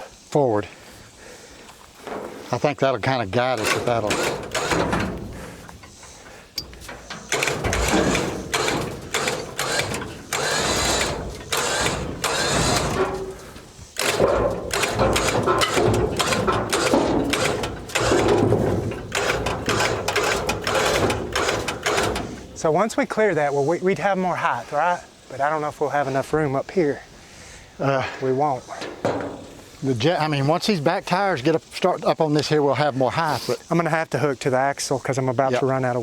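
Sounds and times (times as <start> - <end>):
winch running: 3.3 - 22.7
mechanical clicking and rattling: 3.5 - 6.0, 6.6 - 22.6.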